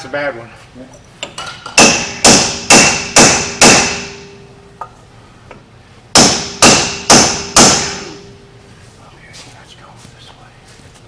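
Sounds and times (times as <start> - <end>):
hammer striking steel hub: 1.2 - 5.0, 6.1 - 8.4.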